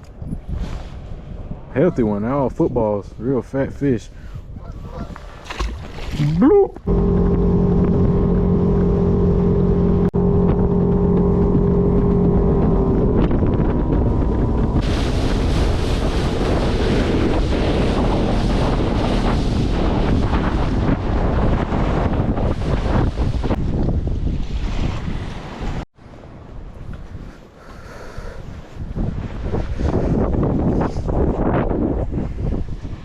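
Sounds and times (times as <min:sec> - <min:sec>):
wind buffeting microphone: 0:00.0 - 0:33.0
rushing water: 0:05.2 - 0:07.2, 0:13.0 - 0:21.2
boat motor humming: 0:06.1 - 0:22.8.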